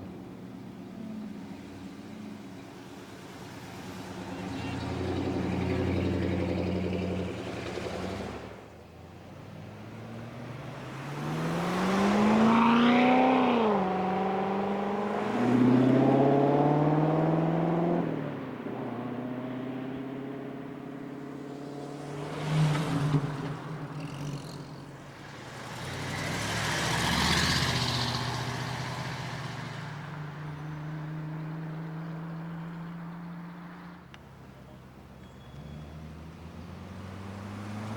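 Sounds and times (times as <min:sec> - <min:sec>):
car engines revving: 0:00.0 - 0:37.9
car passing: 0:00.0 - 0:37.9.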